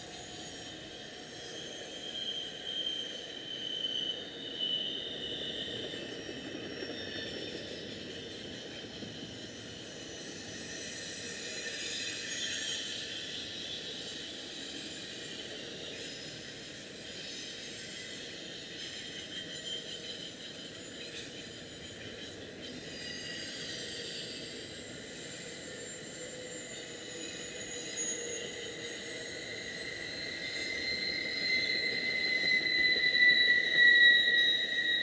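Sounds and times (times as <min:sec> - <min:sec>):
high-pitched wheel squeal: 0:00.0 - 0:08.8, 0:22.8 - 0:35.0
freight train wheels on rails: 0:00.0 - 0:35.0.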